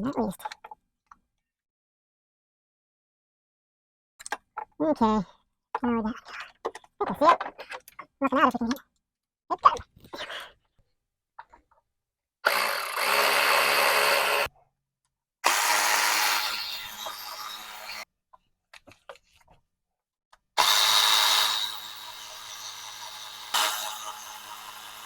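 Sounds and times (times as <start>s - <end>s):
cordless power driver spinning: 12.5s - 14.5s.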